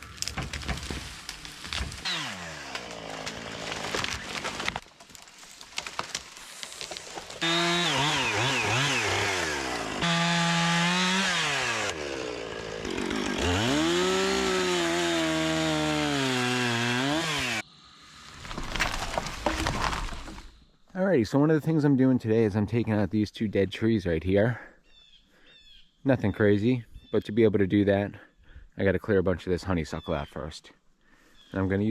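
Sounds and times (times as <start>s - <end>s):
chainsaw revving and cutting wood: 0.0s - 4.8s, 6.9s - 17.6s.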